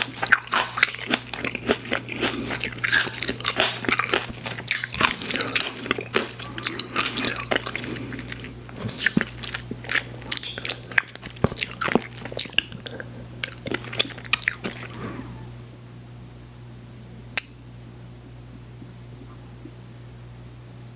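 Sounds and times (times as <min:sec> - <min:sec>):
chewing sweets: 0:00.0 - 0:15.4.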